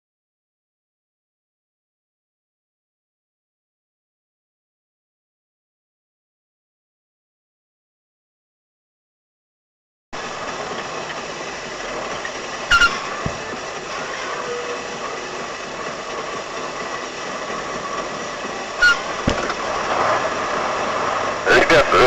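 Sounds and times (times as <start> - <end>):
car road and engine noise: 10.2 - 22.0
dull thump: 13.2 - 13.5, 19.2 - 19.6
sharp knock: 19.2 - 19.5.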